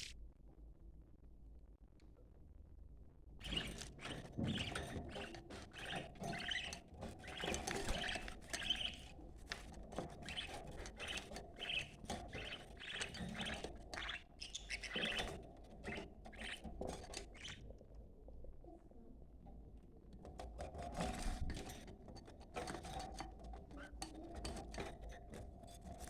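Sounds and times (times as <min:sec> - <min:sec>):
budgerigars chattering: 0:04.5 - 0:09.1, 0:10.2 - 0:16.7.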